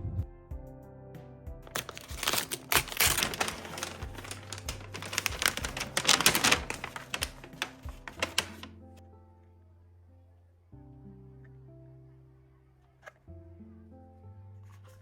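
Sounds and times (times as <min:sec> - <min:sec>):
soft background music: 0:00.0 - 0:15.0
sharp clicks and rustling: 0:01.7 - 0:08.7.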